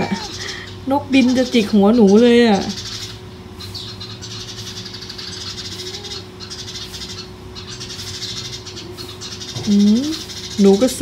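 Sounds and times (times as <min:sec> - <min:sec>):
birds' harsh alarm calls: 0:00.0 - 0:11.0.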